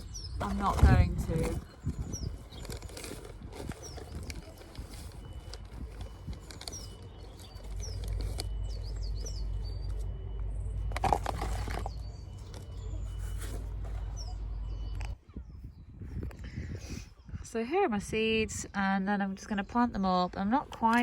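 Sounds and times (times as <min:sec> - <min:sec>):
low rumble: 0:00.0 - 0:16.6
small birds chirping: 0:00.0 - 0:17.5.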